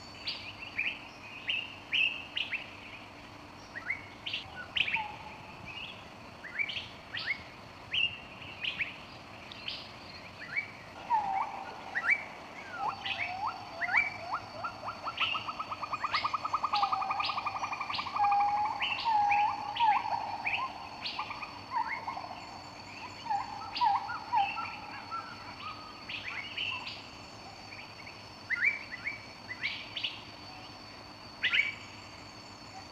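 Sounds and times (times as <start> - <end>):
bird trill: 0.0 - 32.9
birds chirping: 0.0 - 32.9
thin steady high tone: 10.3 - 32.9.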